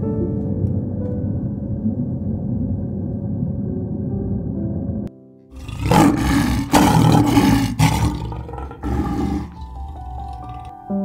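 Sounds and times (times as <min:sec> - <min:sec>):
soft piano music: 0:00.0 - 0:05.8, 0:06.4 - 0:11.0
lion roaring: 0:05.6 - 0:10.8.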